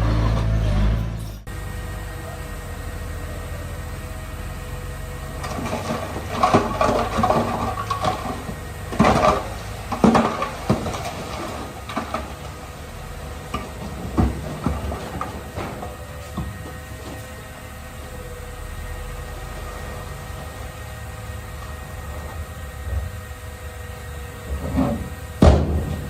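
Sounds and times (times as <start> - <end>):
diesel engine running low: 0.0 - 26.0
metal clanks and bangs: 5.3 - 17.3, 24.5 - 26.0.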